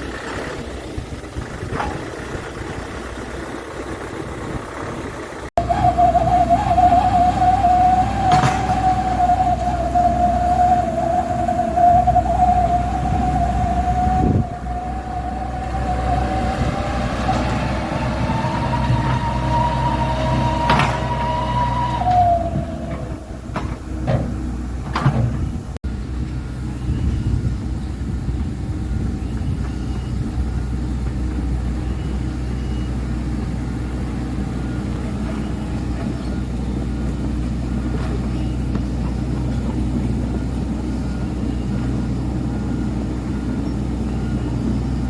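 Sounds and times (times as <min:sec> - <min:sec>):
dump truck engine rumble: 0:00.0 - 0:45.0
high whine: 0:05.6 - 0:24.2.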